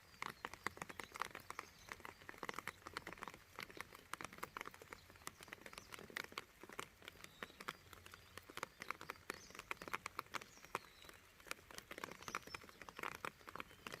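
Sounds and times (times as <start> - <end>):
raindrops tapping on hard surfaces: 0.0 - 14.0.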